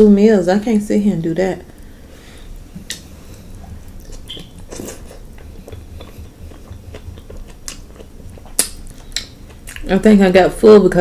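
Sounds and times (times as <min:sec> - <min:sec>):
soft chewing: 0:02.6 - 0:10.2.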